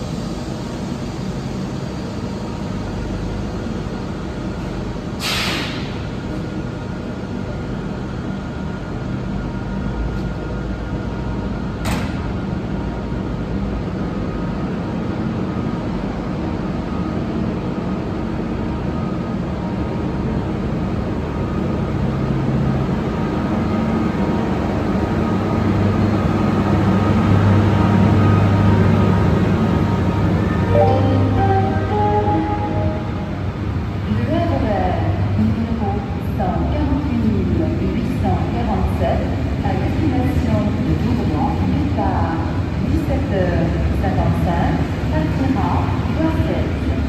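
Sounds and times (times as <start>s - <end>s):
train mechanical hum: 0.0s - 47.0s.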